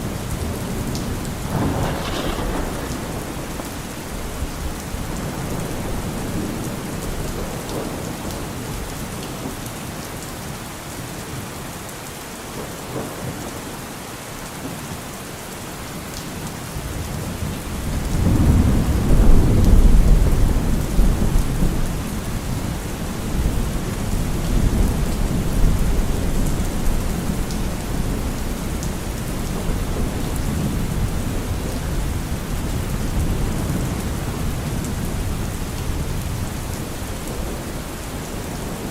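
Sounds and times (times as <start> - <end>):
heavy rain: 0.0 - 38.9
thunder rumbling: 0.1 - 8.2.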